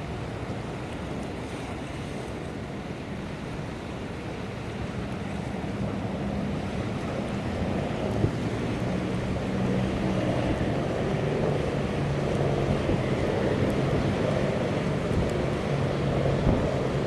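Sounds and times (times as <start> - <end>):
ship engine machinery hum: 4.2 - 17.0
wind buffeting microphone: 5.8 - 17.0.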